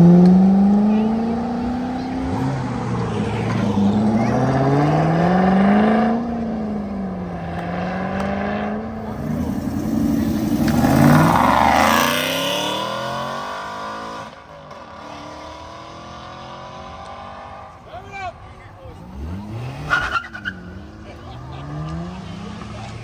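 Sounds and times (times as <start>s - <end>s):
car engine accelerating: 0.0s - 23.0s
another engine revving: 3.0s - 14.2s, 18.8s - 23.0s.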